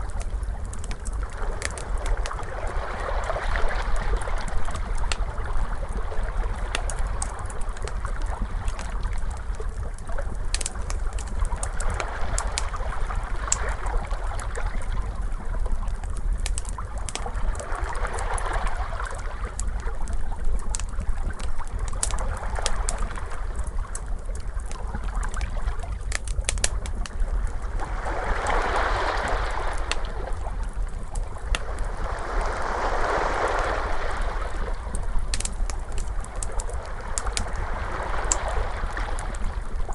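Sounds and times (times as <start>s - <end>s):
wood fire crackling: 0.0s - 39.9s
ocean waves washing: 27.5s - 39.9s.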